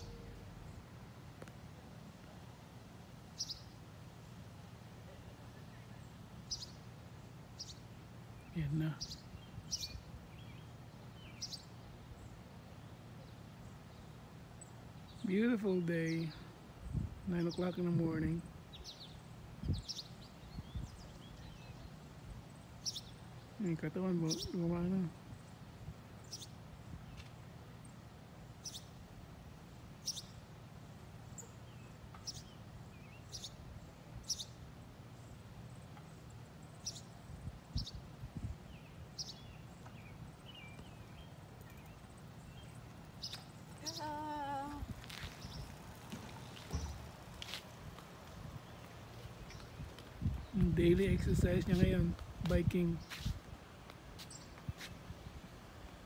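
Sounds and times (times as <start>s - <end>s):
small bird chirping: 5.7s - 6.8s, 26.2s - 26.6s, 28.6s - 29.0s, 30.0s - 30.4s, 31.3s - 33.6s, 34.2s - 34.6s, 35.2s - 47.6s.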